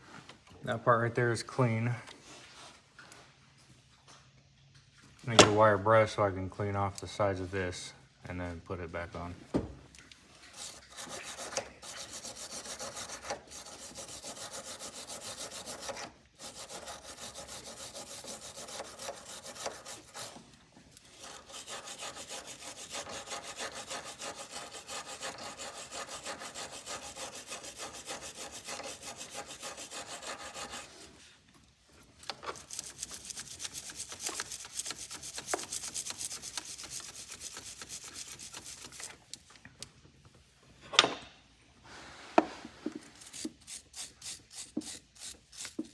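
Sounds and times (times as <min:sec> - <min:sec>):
wire brush scrubbing metal: 0:10.5 - 0:20.4, 0:21.0 - 0:31.2, 0:32.4 - 0:39.1, 0:43.2 - 0:45.9.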